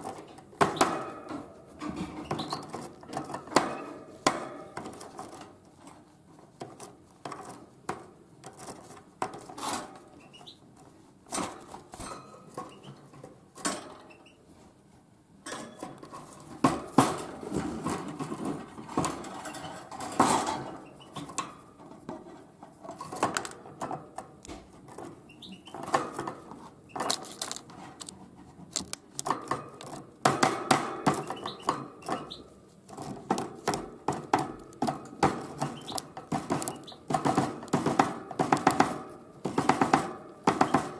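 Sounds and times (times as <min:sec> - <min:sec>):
bird beak tapping seeds: 0:33.0 - 0:39.9.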